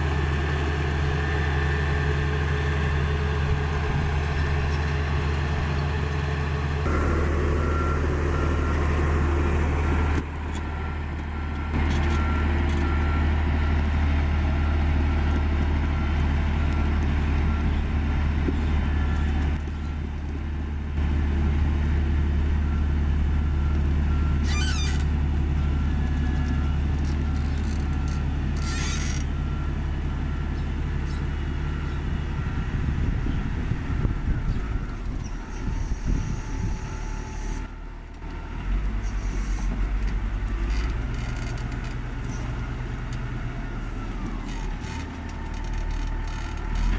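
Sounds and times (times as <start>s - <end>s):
diesel engine running: 0.0s - 46.9s
reversing alarm beeping: 6.4s - 20.0s, 22.6s - 41.6s
short high squeals: 24.4s - 25.1s, 35.2s - 37.7s, 39.0s - 39.8s.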